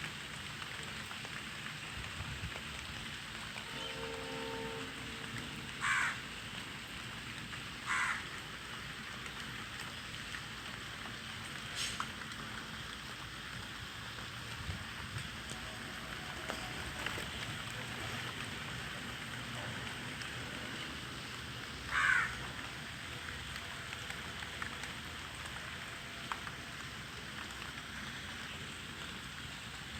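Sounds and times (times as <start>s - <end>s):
faint dripping ticks: 0.0s - 29.9s
rain falling: 0.0s - 29.9s
crow cawing: 5.8s - 6.2s, 7.8s - 8.3s, 21.9s - 22.4s.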